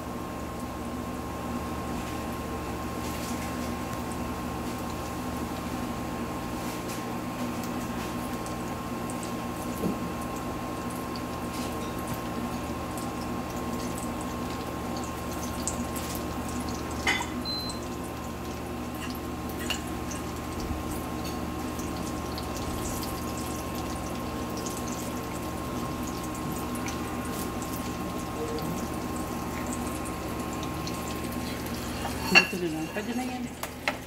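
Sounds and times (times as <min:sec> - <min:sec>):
food sizzling in hot oil: 0:09.0 - 0:33.8.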